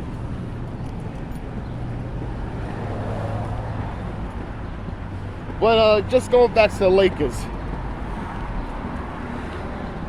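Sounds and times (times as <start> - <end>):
background traffic noise: 0.0 - 10.0.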